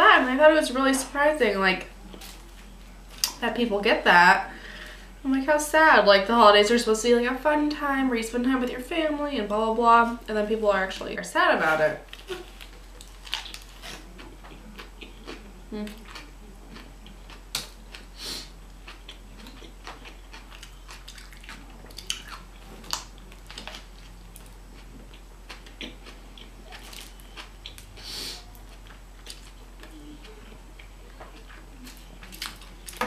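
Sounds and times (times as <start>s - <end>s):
faint electrical hum: 0.0s - 33.0s
biting into a sandwich: 12.1s - 28.1s
chewing with wet mouth clicks: 13.0s - 18.1s, 18.7s - 27.9s.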